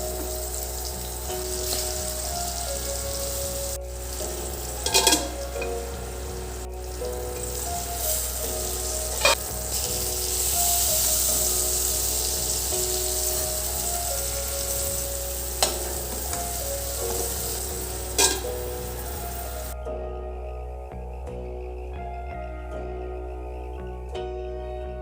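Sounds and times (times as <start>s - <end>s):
food sizzling: 0.0s - 19.8s
soft background music: 0.0s - 25.0s.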